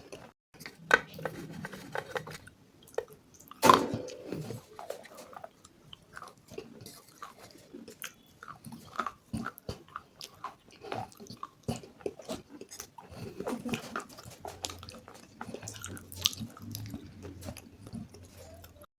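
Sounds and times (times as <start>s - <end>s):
person chewing crunchy food: 4.7s - 18.9s.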